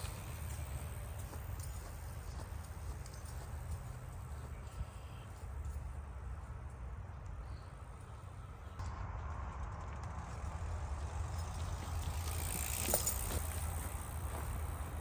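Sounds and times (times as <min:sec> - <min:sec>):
bike tyres on dirt: 0:00.0 - 0:05.4, 0:07.3 - 0:15.0.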